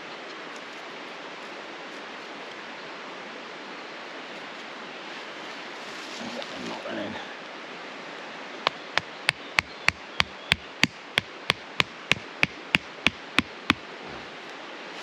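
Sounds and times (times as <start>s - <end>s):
tent peg being hammered: 8.7s - 13.8s.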